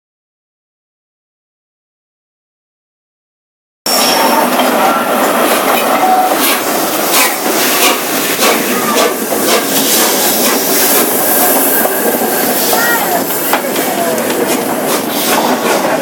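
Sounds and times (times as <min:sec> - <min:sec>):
wheel squeals: 0:03.9 - 0:07.8
train wheels clattering on track: 0:03.9 - 0:16.0.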